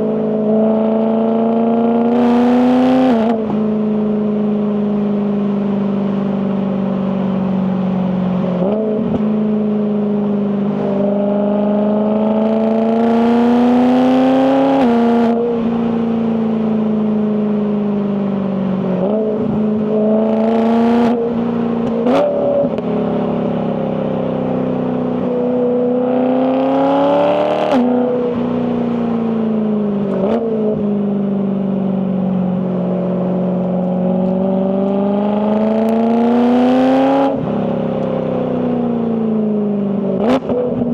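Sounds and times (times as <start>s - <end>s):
car engine revving: 0.0s - 5.3s, 8.2s - 16.4s, 18.6s - 31.2s, 31.8s - 40.9s.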